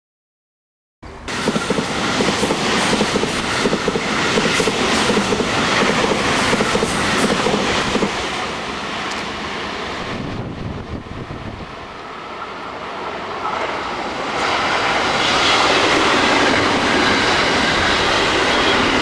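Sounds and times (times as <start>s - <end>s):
train running noise: 1.0s - 19.0s
train wheels clattering on rails: 1.3s - 8.4s.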